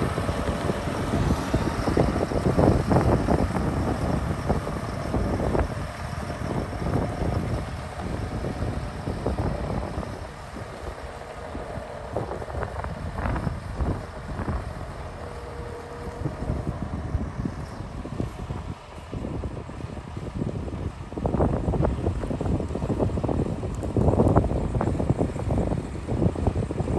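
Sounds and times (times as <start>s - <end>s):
tractor diesel engine rumbling: 0.0s - 21.1s
wind buffeting microphone: 0.0s - 26.9s.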